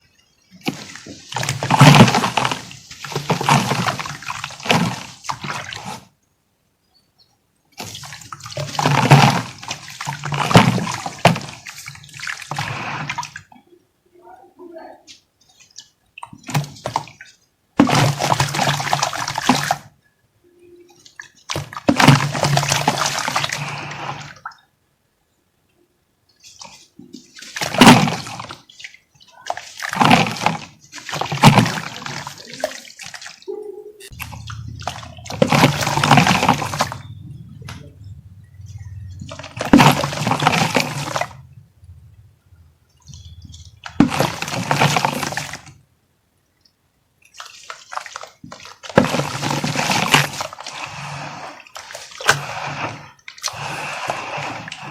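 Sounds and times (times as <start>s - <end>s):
wet earth crumbling and sloshing: 0.4s - 6.1s, 7.8s - 13.4s, 16.4s - 19.9s, 21.3s - 24.4s, 26.5s - 33.4s, 34.1s - 41.6s, 43.0s - 45.8s, 47.3s - 54.9s.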